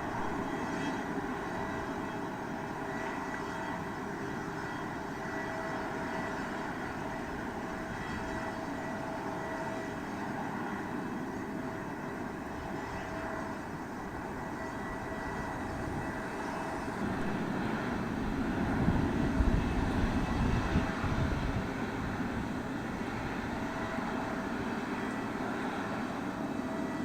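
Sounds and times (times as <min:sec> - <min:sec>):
jet engines passing: 0:10.4 - 0:27.0.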